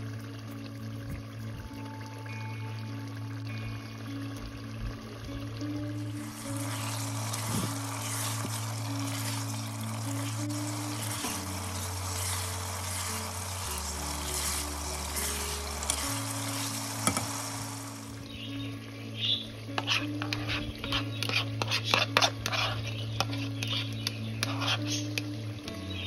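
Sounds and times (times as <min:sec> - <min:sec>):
background music: 0:00.0 - 0:26.0
chicken sizzling in hot oil: 0:00.0 - 0:26.0
spatula stirring in a pot: 0:06.1 - 0:18.2, 0:19.7 - 0:25.3.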